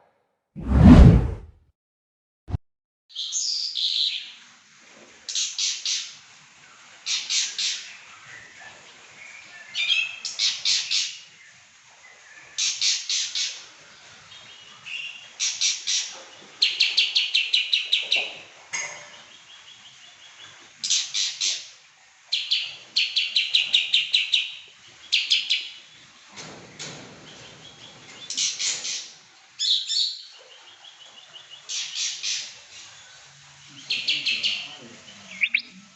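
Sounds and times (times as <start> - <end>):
songbird singing: 32.9 - 35.9
rapid bird trill: 35.3 - 35.8.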